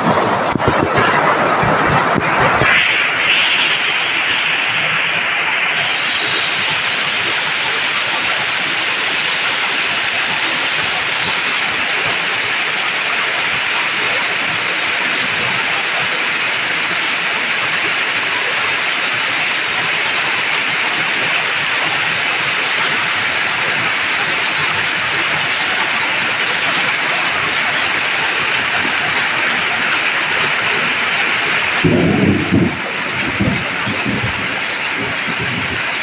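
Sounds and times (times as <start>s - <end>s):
heavy rain on foliage: 0.0s - 36.0s
water pouring off a roof: 0.0s - 36.0s
low rumble: 31.8s - 35.8s.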